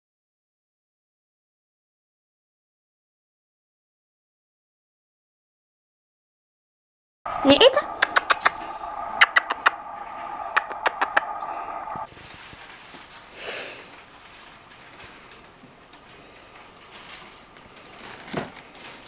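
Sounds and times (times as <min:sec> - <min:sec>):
steady hum: 0:07.3 - 0:19.0
fledgling bird chirping: 0:07.4 - 0:12.1, 0:14.6 - 0:18.1.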